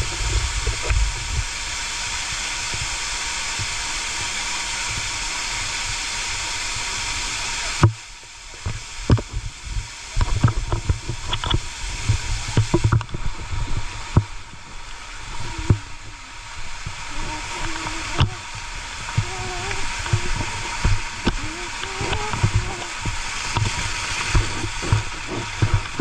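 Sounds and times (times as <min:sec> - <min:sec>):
water splashing and gurgling: 0:00.0 - 0:26.0
faint wavering voice-like tone: 0:15.3 - 0:23.1
low thumps and knocks: 0:19.0 - 0:26.0.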